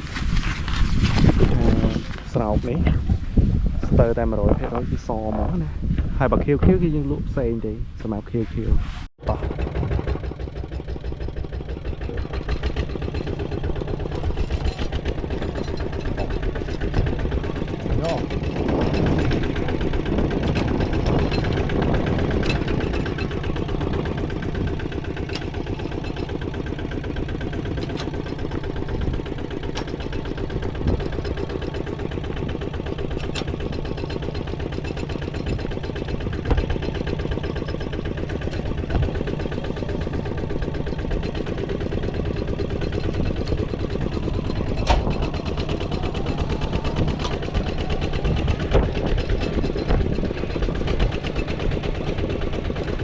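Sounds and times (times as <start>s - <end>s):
engine running steadily: 0.0s - 53.0s
sharp clicks or knocks: 44.4s - 50.0s.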